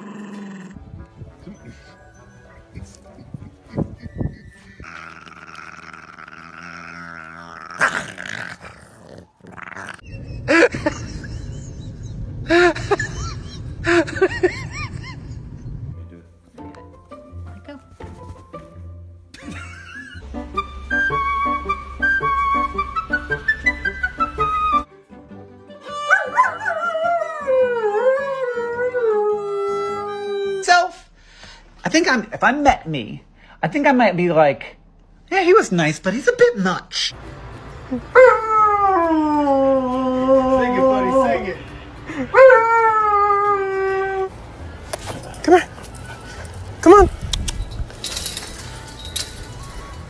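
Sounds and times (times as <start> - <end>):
background music: 0.0 - 6.0, 12.3 - 35.0, 37.1 - 47.0
dog whining: 1.7 - 10.4, 25.9 - 31.0
dog yelping: 3.6 - 10.2, 26.0 - 26.9
dog howling: 25.9 - 30.6.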